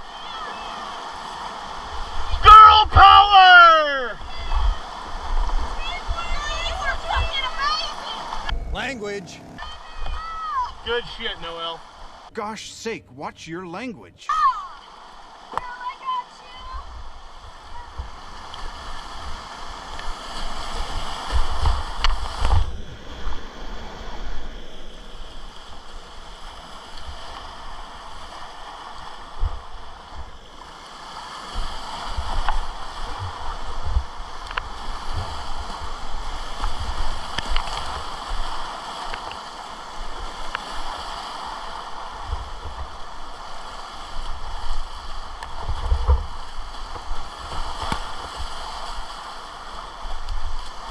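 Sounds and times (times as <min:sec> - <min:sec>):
whitewater rushing: 0:00.0 - 0:16.8
wind buffeting microphone: 0:04.2 - 0:12.3, 0:31.4 - 0:50.9.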